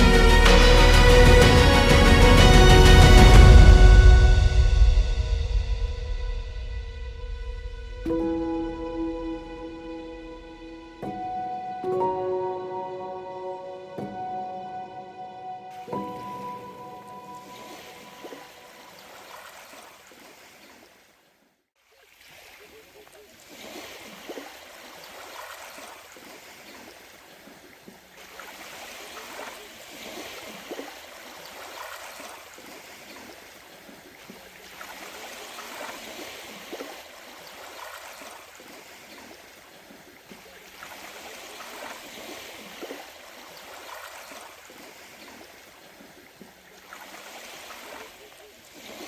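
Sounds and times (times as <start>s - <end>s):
water sloshing and trickling: 15.7s - 21.2s, 21.8s - 49.0s
small water splashes: 17.4s - 49.0s.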